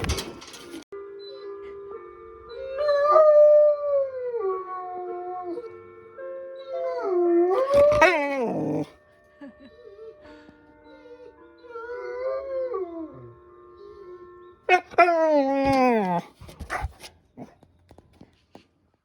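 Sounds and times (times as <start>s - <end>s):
dog howling: 6.9s - 8.9s, 14.0s - 17.5s.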